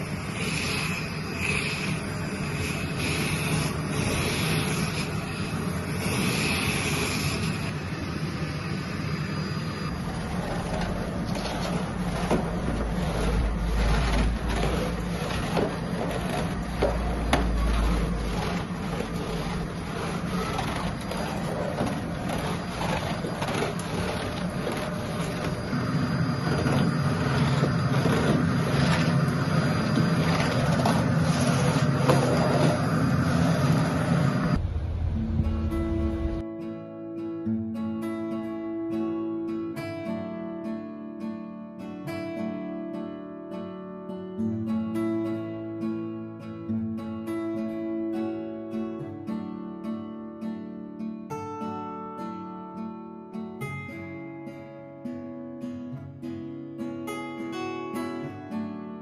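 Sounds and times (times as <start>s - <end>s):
machine drone: 0.0s - 36.4s
deep rumble: 34.4s - 36.4s.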